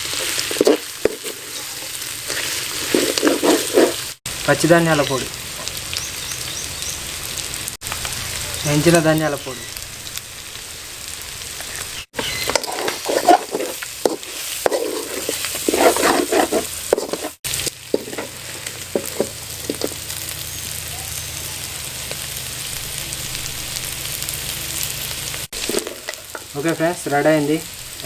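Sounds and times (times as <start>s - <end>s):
spatula scraping a pan: 0.0s - 4.2s, 12.2s - 20.0s
chicken sizzling in a pan: 0.0s - 28.0s.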